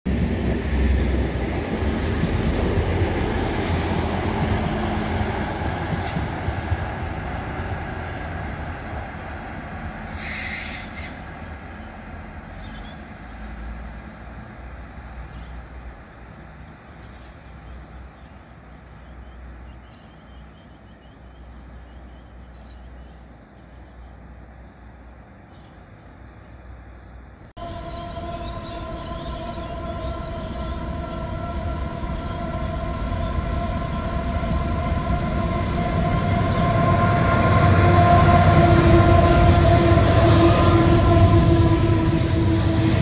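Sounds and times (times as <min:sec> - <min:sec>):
diesel railcar rumble: 0:00.1 - 0:43.0
short hiss: 0:10.1 - 0:11.2.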